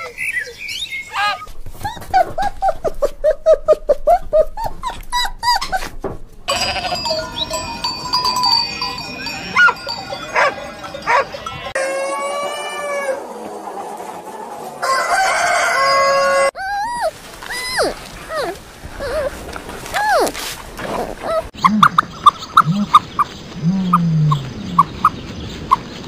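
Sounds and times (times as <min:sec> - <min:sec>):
dog whining: 0:01.1 - 0:05.9, 0:16.5 - 0:21.6
sheep bleating: 0:06.5 - 0:07.4
chickens calling: 0:06.5 - 0:26.0.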